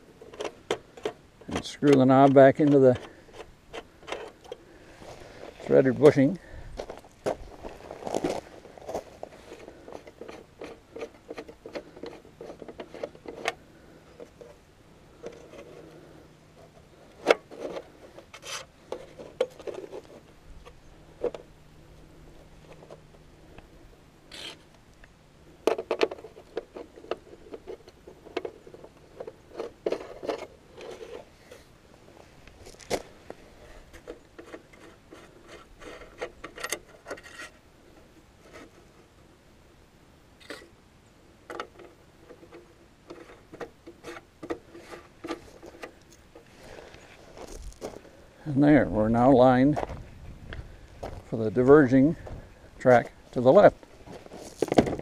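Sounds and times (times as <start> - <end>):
metal parts scraping and clicking: 0.2 - 4.6, 7.6 - 16.0, 24.3 - 24.7, 25.6 - 31.7, 33.6 - 37.6.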